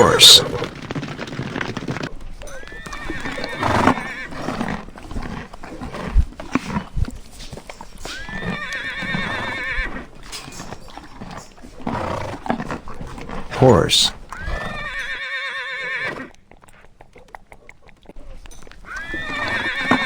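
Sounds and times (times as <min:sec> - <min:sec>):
horse whinnying: 0:00.0 - 0:00.7, 0:02.5 - 0:04.8, 0:08.1 - 0:10.2, 0:13.3 - 0:16.4, 0:18.8 - 0:20.0.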